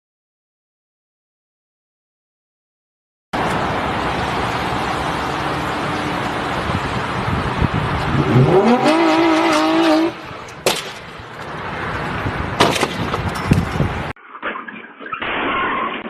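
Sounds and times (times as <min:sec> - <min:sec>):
car road noise: 0:03.4 - 0:14.2.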